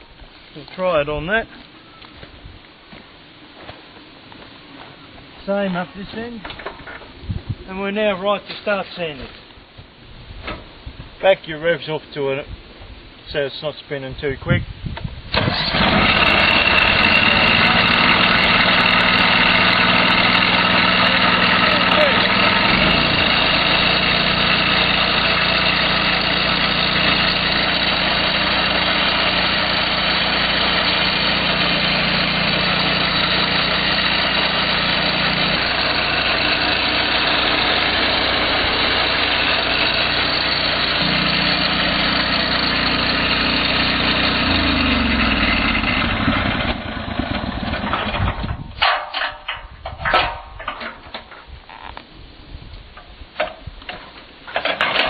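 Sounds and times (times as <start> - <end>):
sawmill engine running: 15.3 - 49.5.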